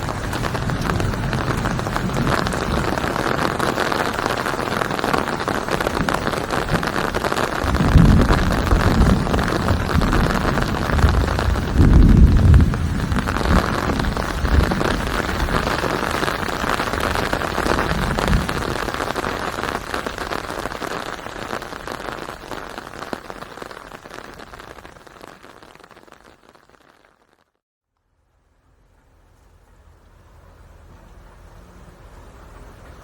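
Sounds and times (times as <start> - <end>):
steady rain hiss: 0.0 - 27.5, 28.4 - 33.0
low rumbles: 7.6 - 19.2.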